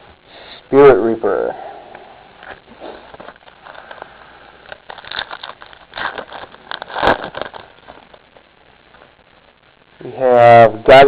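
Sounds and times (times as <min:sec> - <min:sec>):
wrapper snapping: 0:02.4 - 0:08.2
foil pack crinkling and tearing: 0:02.4 - 0:08.3.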